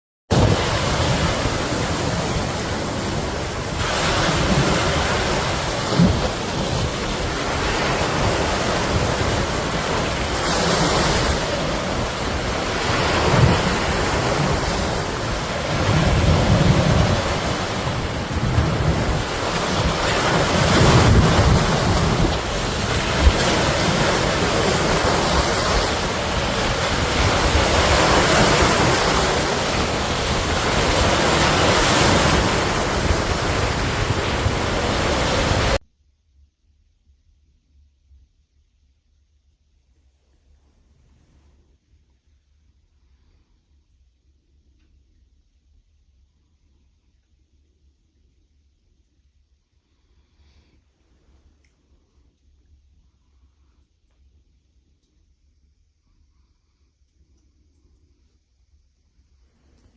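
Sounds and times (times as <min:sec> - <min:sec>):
wind rushing: 0:00.3 - 0:35.8.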